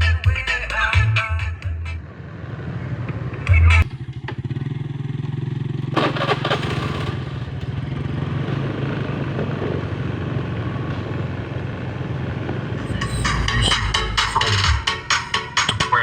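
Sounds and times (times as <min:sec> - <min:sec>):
bass-heavy electronic music: 0:00.0 - 0:02.0, 0:03.4 - 0:03.9, 0:12.8 - 0:16.0
small engine humming: 0:02.0 - 0:15.4.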